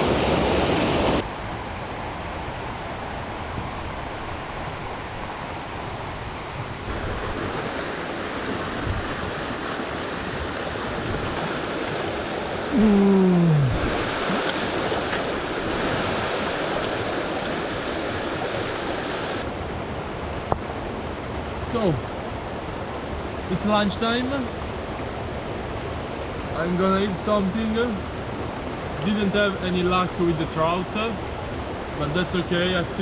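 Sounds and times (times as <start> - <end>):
river rushing over rocks: 0.0 - 2.2, 6.8 - 21.5
brief falling vocal sound: 12.7 - 13.9.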